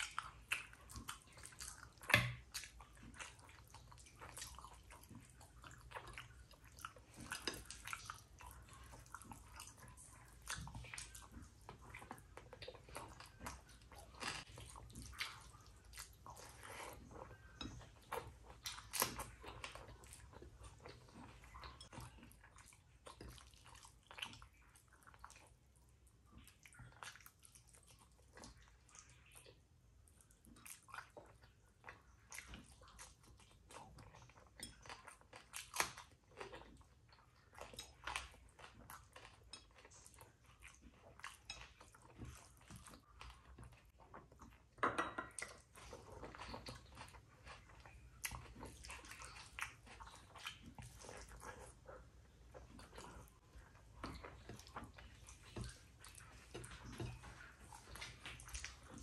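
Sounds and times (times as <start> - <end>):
wet chewing and lip smacks: 0.0 - 59.0.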